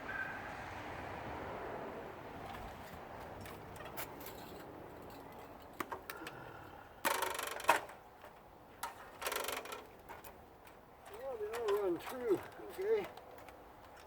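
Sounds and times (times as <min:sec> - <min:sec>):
light metallic clicks and knocks: 0:02.5 - 0:06.4, 0:07.0 - 0:14.0.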